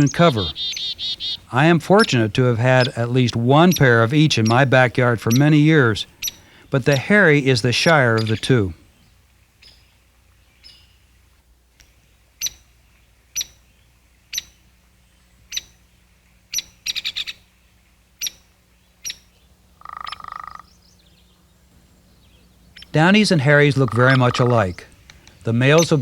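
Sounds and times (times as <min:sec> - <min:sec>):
woodpecker call notes: 0:00.0 - 0:11.2, 0:11.8 - 0:26.0.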